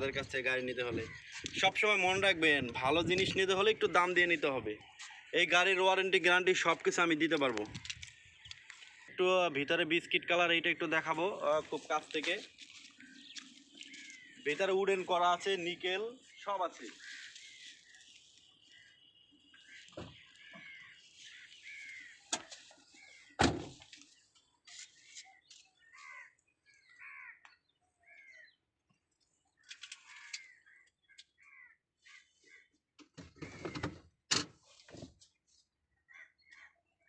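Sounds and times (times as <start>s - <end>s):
birds calling: 0.0s - 34.0s.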